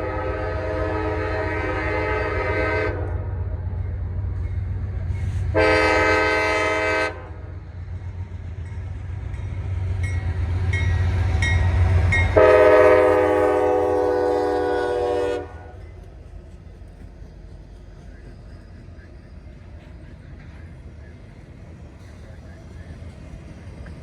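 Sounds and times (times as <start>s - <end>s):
locomotive air horn: 0.0s - 3.4s, 5.5s - 7.4s, 12.3s - 15.8s
train locomotive rumble: 0.0s - 24.0s.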